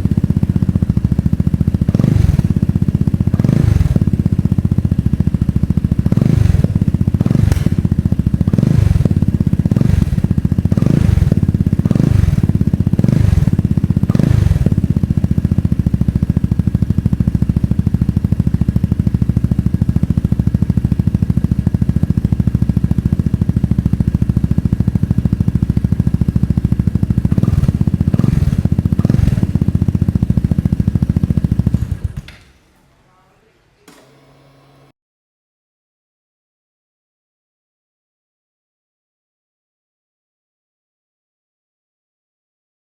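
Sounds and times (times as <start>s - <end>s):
scooter engine revving and idling: 0.0s - 32.4s, 33.9s - 34.9s.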